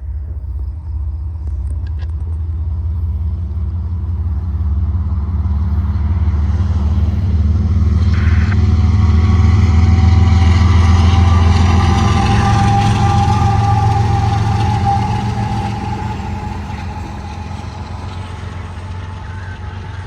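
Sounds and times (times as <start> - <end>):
diesel locomotive engines rumbling: 0.0 - 20.0
brief high tone: 8.0 - 20.0.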